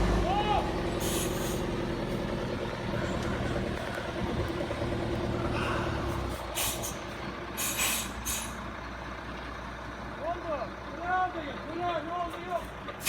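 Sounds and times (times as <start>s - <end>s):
heavy truck engine running: 0.0s - 13.0s
air brake hisses: 1.0s - 1.6s, 6.3s - 8.6s.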